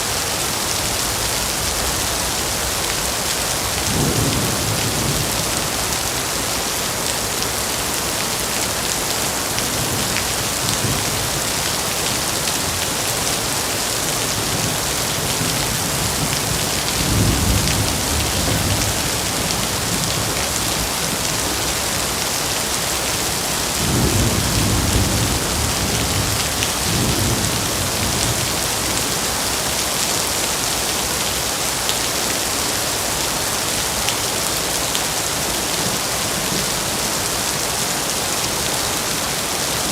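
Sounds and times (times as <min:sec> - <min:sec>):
heavy rain hissing: 0:00.0 - 0:39.9
thunder rumbling: 0:14.1 - 0:21.2, 0:23.8 - 0:28.9.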